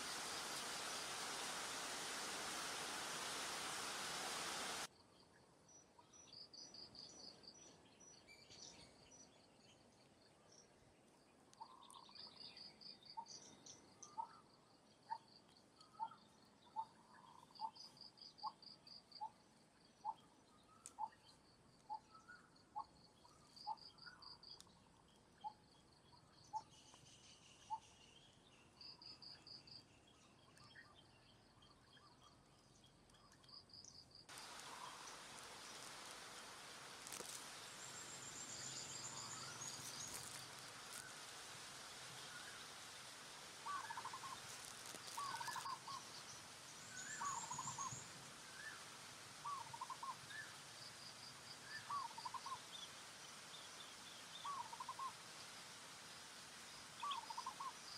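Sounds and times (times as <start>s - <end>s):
insects trilling: 0.0s - 4.9s, 33.8s - 57.9s.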